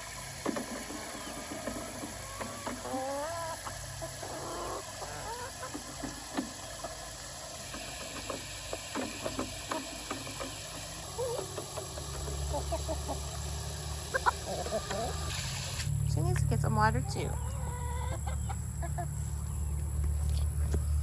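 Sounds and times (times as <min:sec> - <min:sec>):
hens calling softly: 0:02.0 - 0:06.8, 0:14.0 - 0:15.3, 0:16.9 - 0:20.8.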